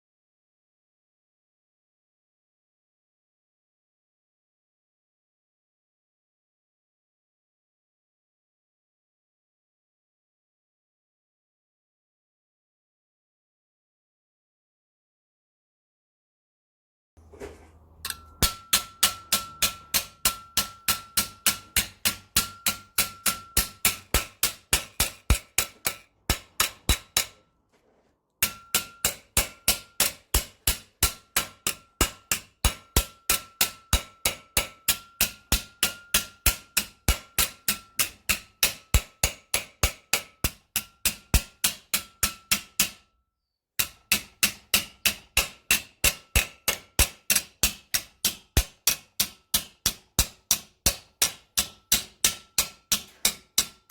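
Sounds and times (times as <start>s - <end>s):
hammer blows on steel plate: 18.0s - 27.4s.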